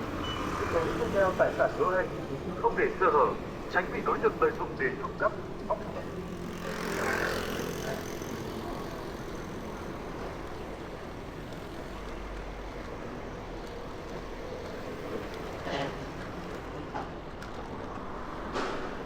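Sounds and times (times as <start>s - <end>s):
motorbikes and cars traffic: 0.0s - 19.0s.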